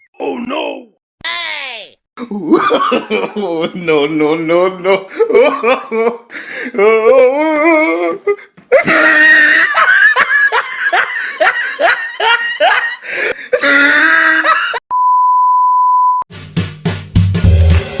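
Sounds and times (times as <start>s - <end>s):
person laughing hard: 2.2s - 3.9s, 4.8s - 7.9s, 8.7s - 14.8s
single-tone bleep: 14.9s - 16.2s.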